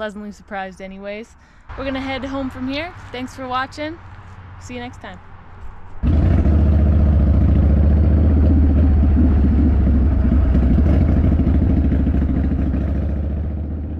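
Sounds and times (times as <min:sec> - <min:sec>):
motorcycle engine running: 0:06.0 - 0:13.9.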